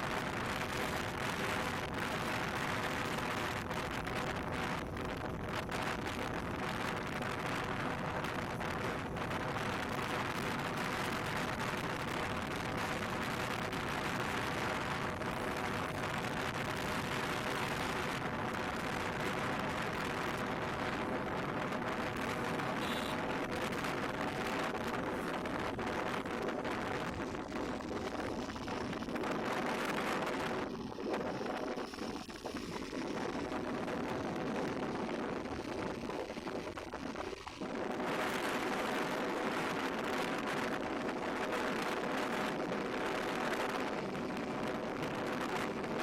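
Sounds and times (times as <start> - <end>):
motorcycle engine running: 0.0 - 35.8
wind and road noise: 0.0 - 46.0.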